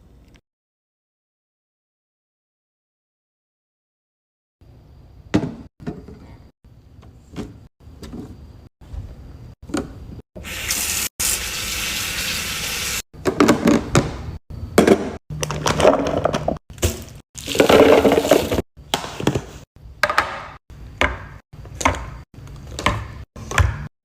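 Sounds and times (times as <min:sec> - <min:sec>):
containers and shelves knocking: 0:05.3 - 0:06.4, 0:13.2 - 0:23.9
water hissing: 0:10.4 - 0:13.0.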